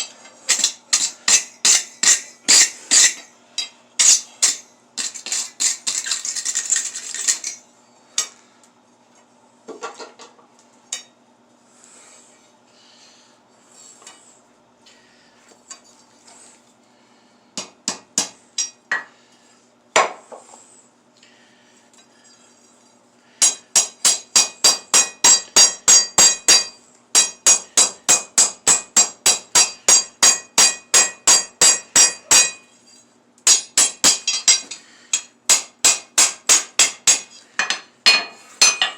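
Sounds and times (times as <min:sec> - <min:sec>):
hammer striking steel on anvil: 0:00.5 - 0:05.1, 0:23.4 - 0:32.7, 0:33.5 - 0:38.9.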